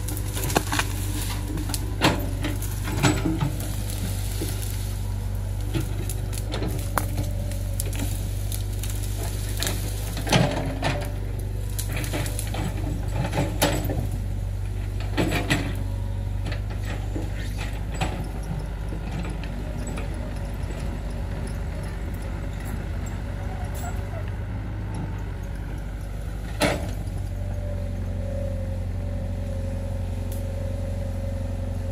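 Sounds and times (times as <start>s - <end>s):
digging knocks and clanks: 0.0s - 28.5s
excavator engine droning: 0.0s - 31.9s.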